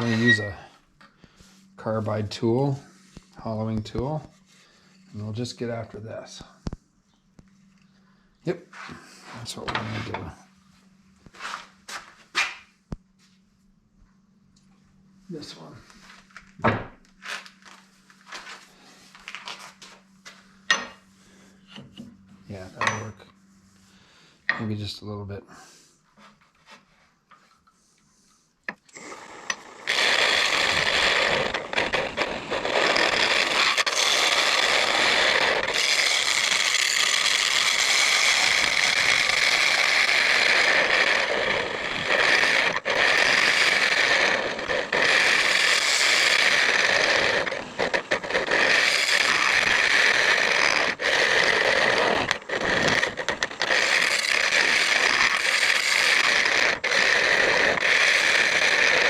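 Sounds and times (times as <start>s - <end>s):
lathe tool scraping wood: 0.0s - 0.7s, 8.7s - 10.4s, 28.7s - 59.0s.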